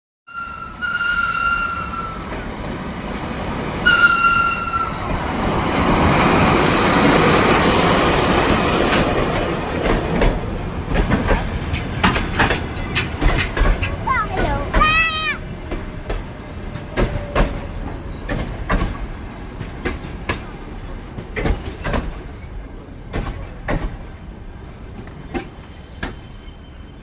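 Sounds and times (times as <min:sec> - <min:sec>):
train rumbling: 0:00.3 - 0:27.0
wheels clacking over rail joints: 0:02.0 - 0:26.5
locomotive horn blasts: 0:03.8 - 0:05.1.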